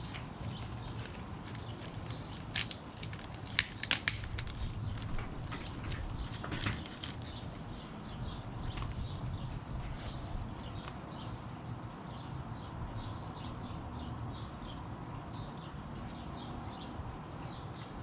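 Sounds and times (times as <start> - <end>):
sharp clicks and light knocks: 0.0 - 7.4
low background noise: 0.0 - 18.0.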